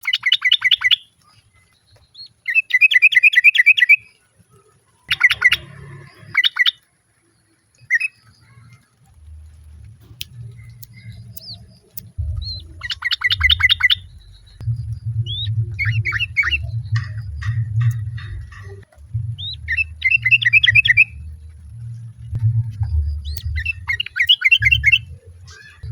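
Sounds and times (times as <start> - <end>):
bulbul bubbly calls: 0.0 - 1.1, 5.1 - 6.8, 7.8 - 25.9
bird whistles: 5.1 - 5.7, 12.4 - 14.6, 15.3 - 17.2, 19.4 - 21.2, 23.2 - 25.9
low rumble: 8.4 - 25.9.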